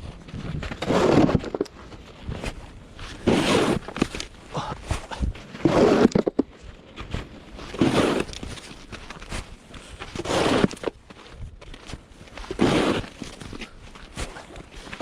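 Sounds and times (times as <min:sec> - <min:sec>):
snow shovel scraping snow: 0:00.6 - 0:01.6, 0:02.2 - 0:04.2, 0:04.8 - 0:06.4, 0:07.5 - 0:11.0, 0:11.9 - 0:15.0.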